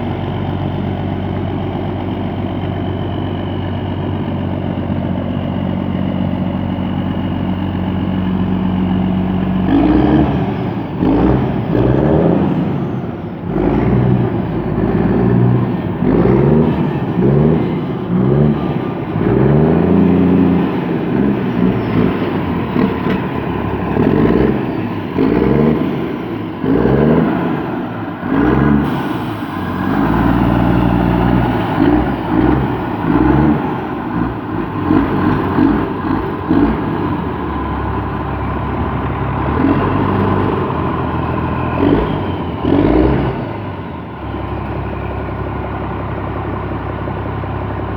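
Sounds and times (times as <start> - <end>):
tractor diesel engine revving: 0.0 - 47.9.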